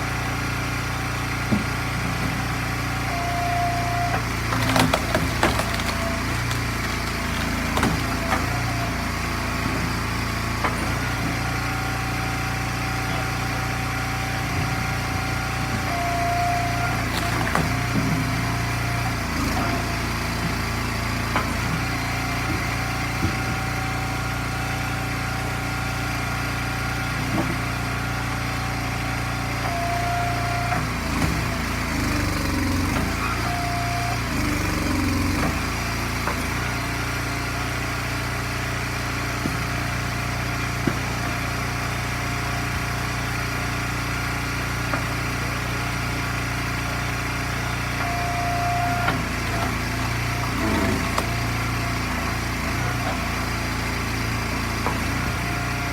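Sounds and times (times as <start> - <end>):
small gasoline engine running: 0.0 - 55.9.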